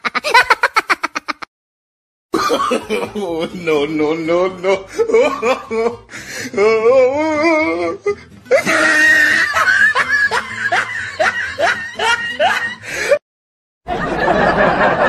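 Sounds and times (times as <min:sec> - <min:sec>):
person laughing: 0:00.0 - 0:01.5, 0:02.4 - 0:03.8, 0:04.6 - 0:06.0, 0:06.6 - 0:13.2.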